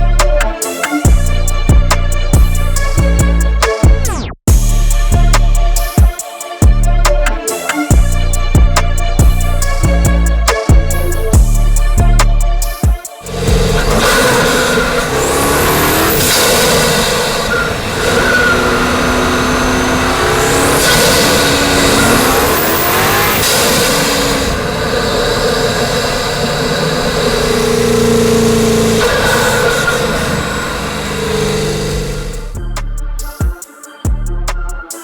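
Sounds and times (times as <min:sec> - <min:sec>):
car engine revving: 0:06.6 - 0:33.2.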